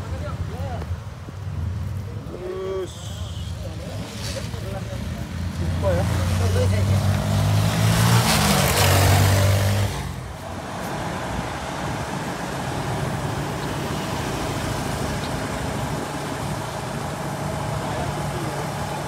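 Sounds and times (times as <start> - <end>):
heavy truck engine labouring: 5.6 - 19.0.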